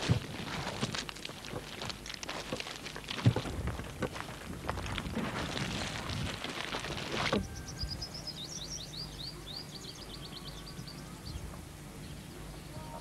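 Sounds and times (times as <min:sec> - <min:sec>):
crackling rushing noise: 0:00.0 - 0:07.4
bird chirping: 0:07.5 - 0:13.0.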